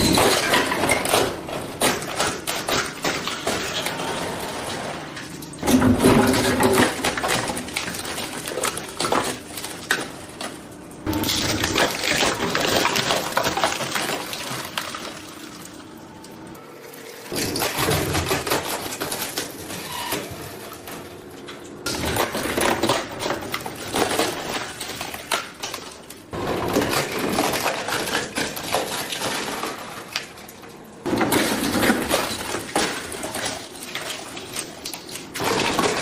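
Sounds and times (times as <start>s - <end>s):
shredder crunching plastic: 5.6s - 15.3s, 17.3s - 21.0s, 21.8s - 30.4s, 31.0s - 36.0s.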